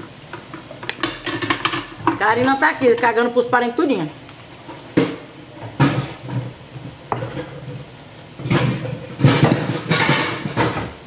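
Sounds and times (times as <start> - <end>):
household knocks and clattering: 5.0 - 11.0.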